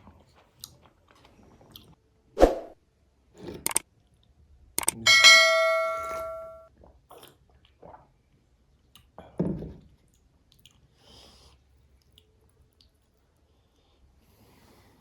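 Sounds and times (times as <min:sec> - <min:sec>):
chewing and handling noises: 0:00.0 - 0:02.0, 0:09.9 - 0:13.9
tableware clink ringing: 0:04.9 - 0:06.6.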